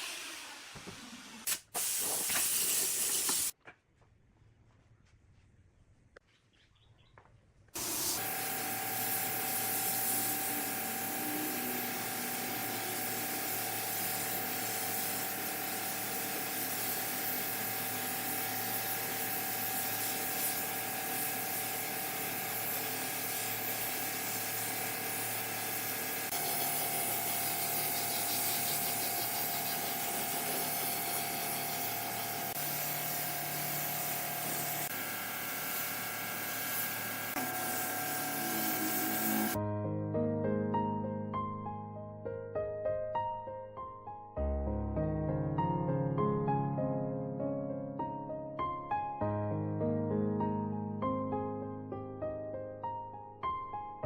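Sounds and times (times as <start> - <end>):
steady machine hiss: 7.8 - 39.6.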